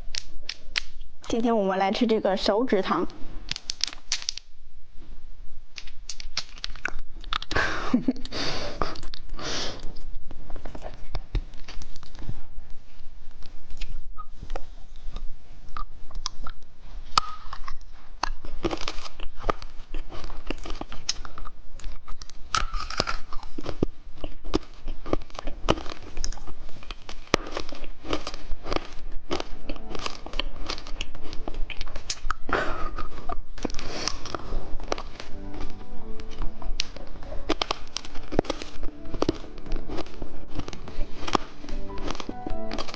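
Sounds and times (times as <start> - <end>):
wrapper crinkling and tearing: 3.4 - 4.5, 5.8 - 7.6, 10.6 - 12.2, 17.1 - 42.9
chewing and crunching candy: 3.5 - 4.5, 5.7 - 12.5, 13.3 - 42.9.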